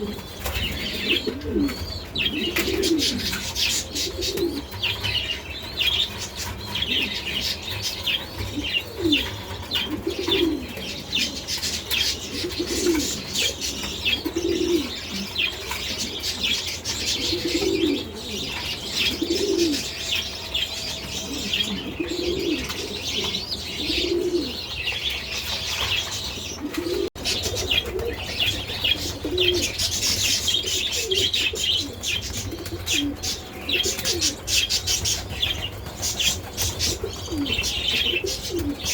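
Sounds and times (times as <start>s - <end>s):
pigeons cooing: 0.0s - 38.9s
small birds chirping: 0.0s - 38.9s.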